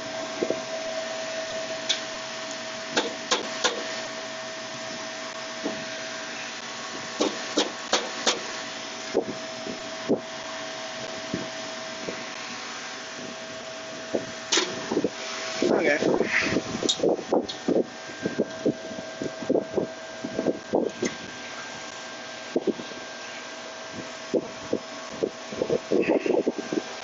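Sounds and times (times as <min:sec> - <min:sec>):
mechanical whir: 0:00.0 - 0:27.0
sharp metallic clicks and knocks: 0:02.9 - 0:03.8, 0:07.2 - 0:08.5.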